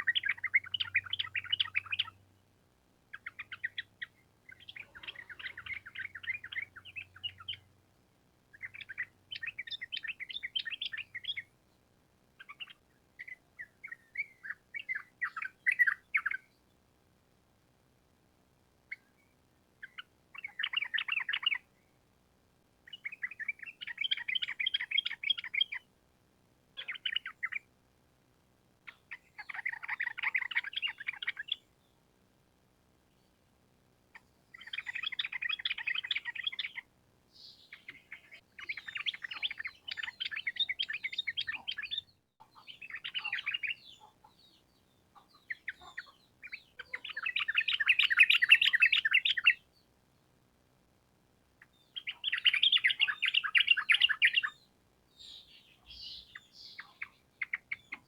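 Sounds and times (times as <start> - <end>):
bird singing chattering notes: 4.5 - 7.6, 34.6 - 36.8, 37.4 - 49.6, 52.0 - 54.6, 55.2 - 58.0.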